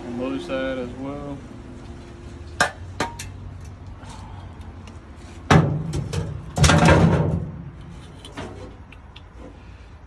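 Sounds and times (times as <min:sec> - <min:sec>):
heavy metal bangs: 0:05.5 - 0:07.7.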